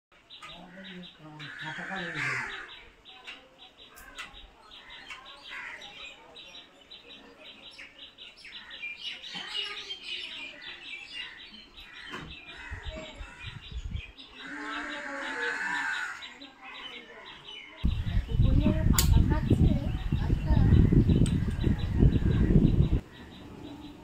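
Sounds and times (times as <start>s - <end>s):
birds chirping: 0.1s - 24.0s
low rumble: 17.8s - 23.0s.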